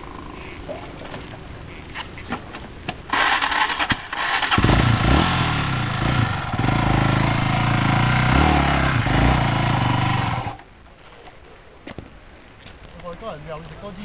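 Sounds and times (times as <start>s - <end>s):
dirt bike engine revving: 3.1s - 10.6s.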